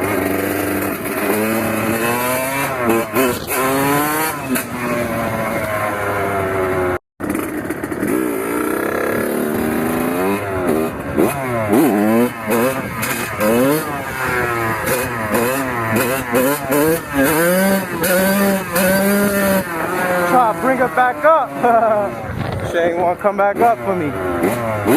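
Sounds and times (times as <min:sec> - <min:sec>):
two-stroke engine revving: 0:00.0 - 0:24.9.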